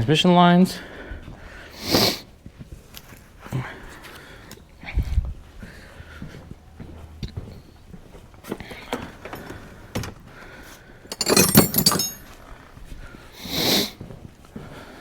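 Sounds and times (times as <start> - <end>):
metallic clatter with ringing: 11.1 - 12.2
metal tools clinking and knocking: 11.1 - 12.3.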